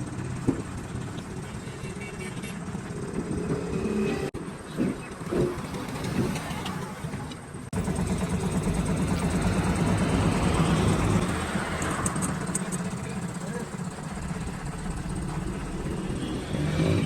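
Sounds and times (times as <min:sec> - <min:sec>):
vehicle engine idling: 0:00.0 - 0:17.0
knocks and clatter: 0:00.4 - 0:01.3.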